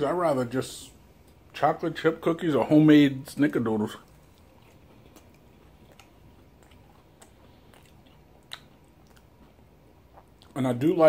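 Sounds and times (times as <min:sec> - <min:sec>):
faint chewing: 0:03.2 - 0:10.8
soft mouth clicks: 0:04.0 - 0:10.6.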